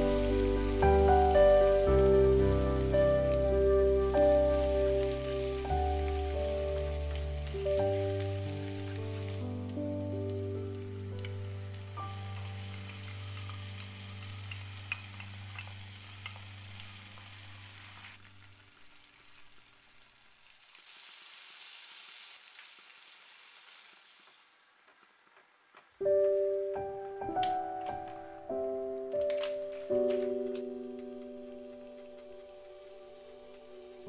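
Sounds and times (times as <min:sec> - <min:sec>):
background music: 0:00.0 - 0:16.0, 0:26.0 - 0:34.0
water poured into hot pan: 0:00.0 - 0:24.6
lentils sizzling in a pan: 0:00.0 - 0:25.8.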